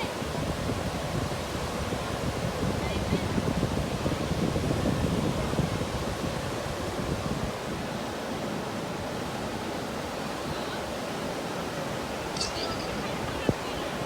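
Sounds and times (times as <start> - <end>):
ocean surf washing ashore: 0.0 - 14.0
wind buffeting microphone: 0.1 - 7.8.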